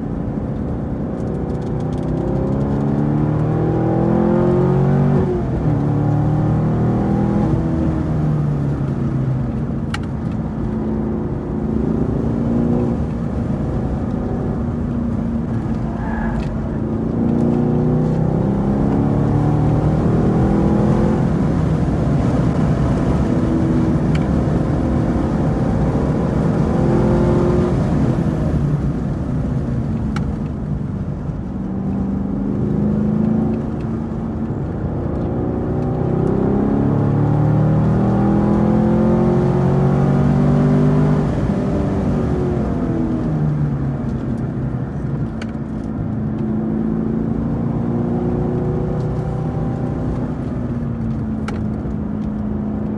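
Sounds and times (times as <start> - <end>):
race car engine accelerating: 1.2 - 52.0.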